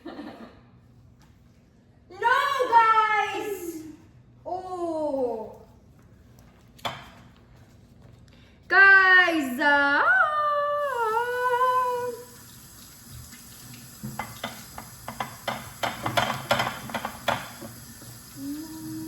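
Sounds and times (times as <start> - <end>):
running water: 10.9 - 19.0
clicks and clatter at a sink: 14.0 - 17.8.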